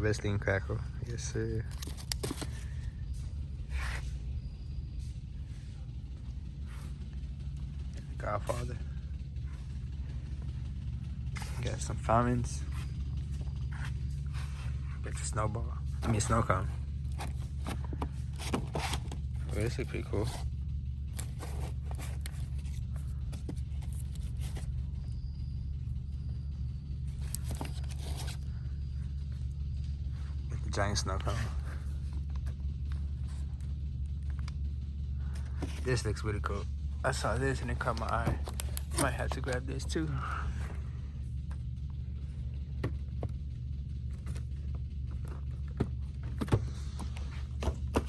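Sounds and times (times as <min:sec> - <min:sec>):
low mechanical hum: 0:00.0 - 0:48.0
clicks and rustles of handling: 0:01.6 - 0:02.9, 0:15.9 - 0:25.0, 0:27.1 - 0:28.5, 0:37.8 - 0:39.9.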